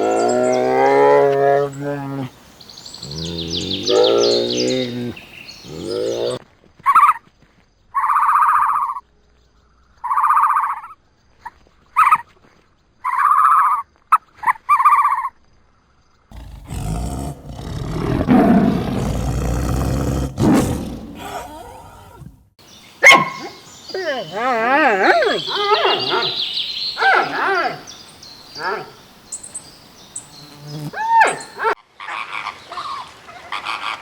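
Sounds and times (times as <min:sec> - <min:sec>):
rough low animal noise: 0:00.0 - 0:06.4, 0:16.3 - 0:22.6
farm animal calling: 0:16.3 - 0:22.4.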